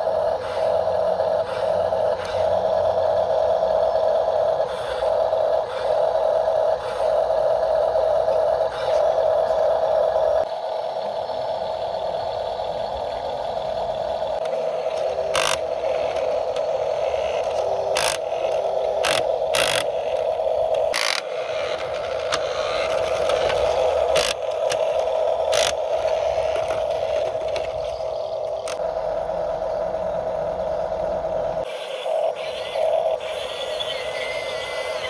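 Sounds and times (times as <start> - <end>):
model motor whining: 0.0 - 10.5, 11.4 - 29.4, 30.6 - 35.0
sharp clicks and scrapes: 14.4 - 28.8.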